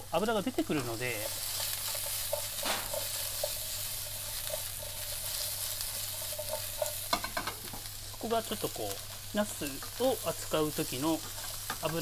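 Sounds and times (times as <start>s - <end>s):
food sizzling in oil: 0.0s - 12.0s
frying pan knocks: 2.6s - 3.1s.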